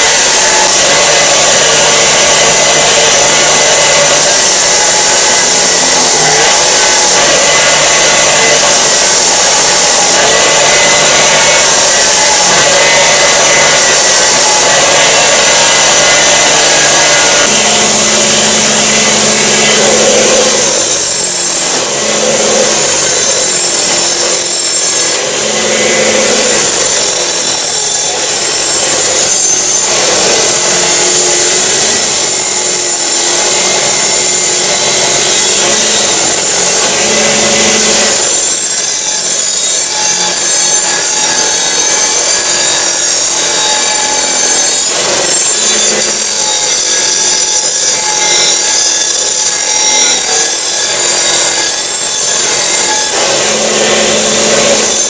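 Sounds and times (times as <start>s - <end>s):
wire brush scrubbing metal: 0.0s - 55.0s.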